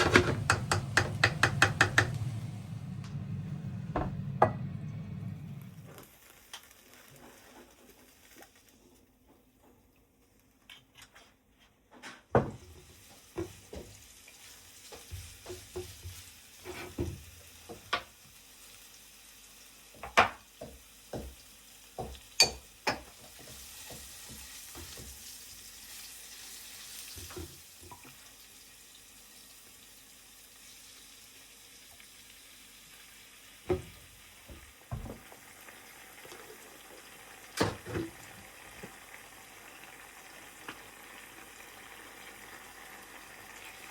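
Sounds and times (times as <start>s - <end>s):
utensil knocking against pan: 0.0s - 2.3s
food sizzling in a pan: 5.7s - 9.1s, 12.5s - 43.9s.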